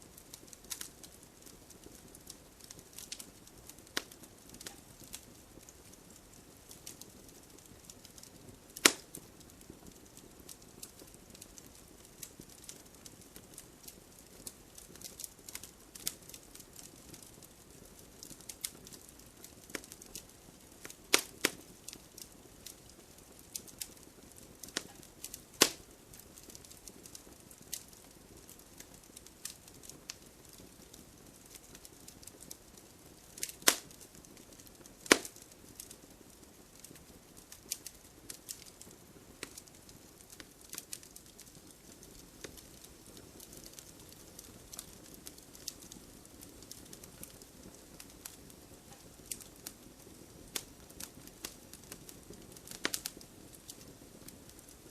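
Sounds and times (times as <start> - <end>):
wood fire crackling: 0.0 - 54.9
loud sharp pops from logs: 8.8 - 9.0, 21.1 - 21.6, 25.6 - 25.8, 33.6 - 33.8, 35.0 - 35.4.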